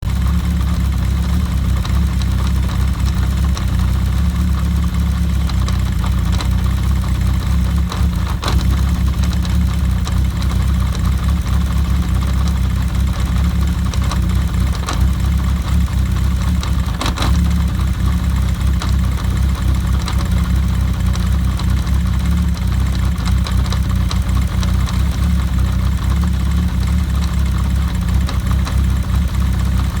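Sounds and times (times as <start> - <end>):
rattling engine idling: 0.0 - 30.0
sharp engine clicks: 0.1 - 30.0.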